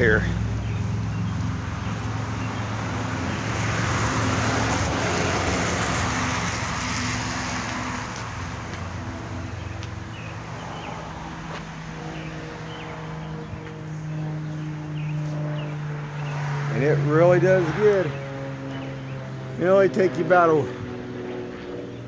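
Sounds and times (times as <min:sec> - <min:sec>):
low hum: 0:00.0 - 0:17.1
road vehicle passing by: 0:00.0 - 0:22.0.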